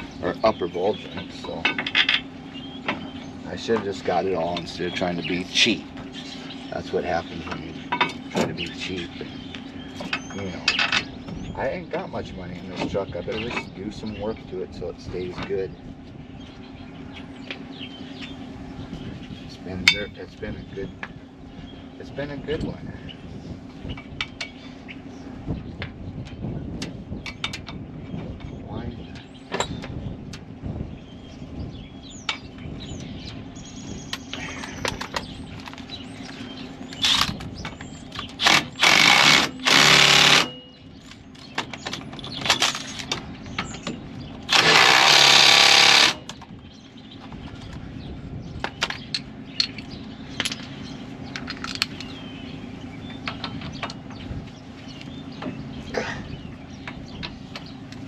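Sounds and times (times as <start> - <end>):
steady low hum: 0.0 - 58.0
hand tools and parts clinking: 36.9 - 46.5, 48.6 - 52.2
impact wrench rattling: 44.5 - 46.3.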